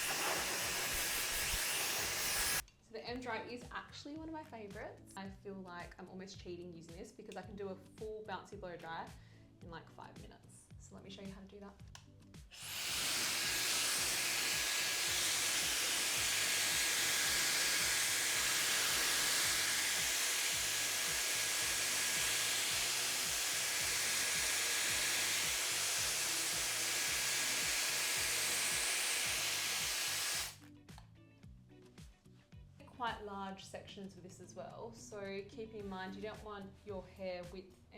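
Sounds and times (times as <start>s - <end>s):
hair dryer blowing air: 0.0s - 2.6s, 12.5s - 30.6s.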